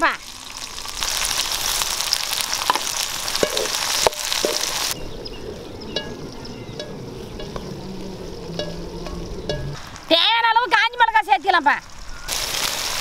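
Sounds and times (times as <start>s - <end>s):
food sizzling in hot oil: 0.0s - 11.1s, 11.8s - 13.0s
metal spatula knocking pan: 3.4s - 4.8s, 8.5s - 9.8s.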